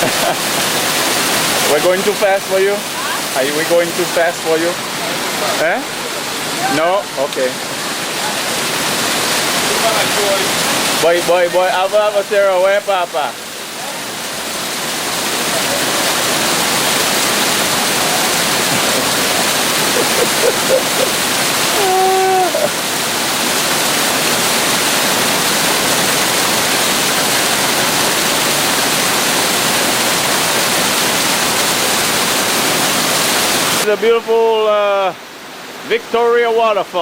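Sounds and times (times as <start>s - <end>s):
waterfall rushing: 0.0s - 37.0s
person calling out: 20.0s - 22.8s.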